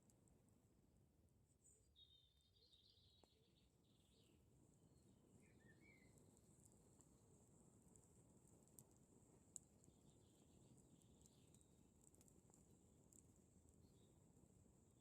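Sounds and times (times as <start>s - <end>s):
bird chirping: 1.6s - 4.4s, 5.0s - 6.2s, 9.9s - 11.7s
campfire crackling: 3.2s - 15.0s.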